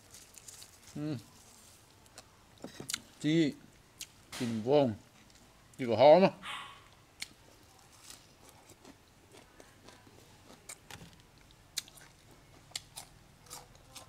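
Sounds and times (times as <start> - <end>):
person crunching lettuce: 0.0 - 1.8.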